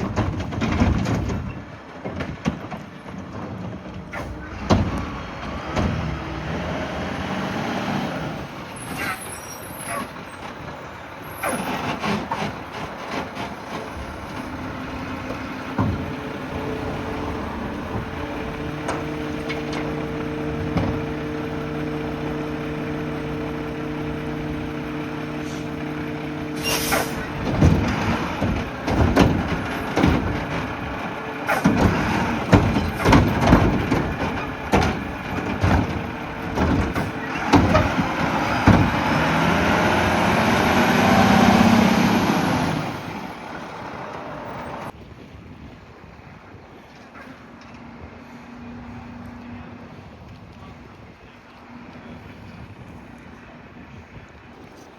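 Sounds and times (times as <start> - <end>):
clatter: 0.0 - 6.0, 27.1 - 39.2
bangs and knocks of bins: 0.0 - 6.7, 11.5 - 21.2, 27.0 - 40.4
garbage truck engine running: 0.0 - 45.0
air hiss: 26.6 - 27.2.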